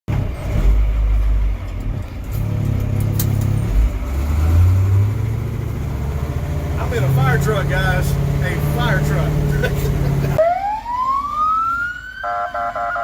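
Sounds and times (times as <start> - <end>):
car engine running: 5.1 - 10.4.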